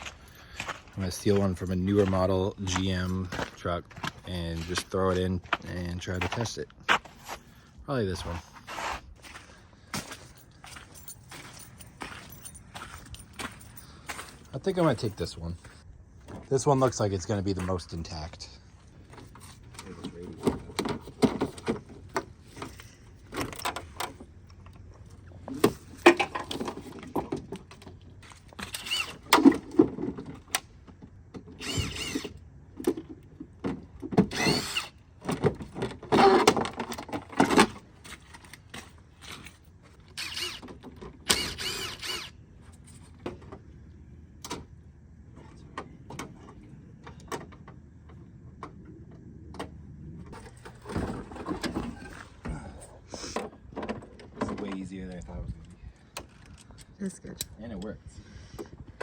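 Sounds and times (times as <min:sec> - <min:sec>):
power driver whirring: 0:28.6 - 0:29.4, 0:31.5 - 0:32.4, 0:34.2 - 0:35.0, 0:40.1 - 0:42.4.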